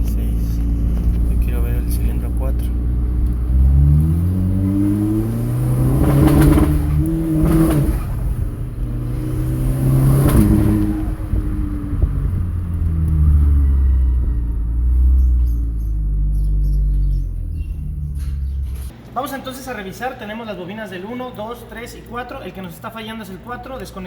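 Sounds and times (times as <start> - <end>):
car engine revving with misfire: 0.0 - 18.9.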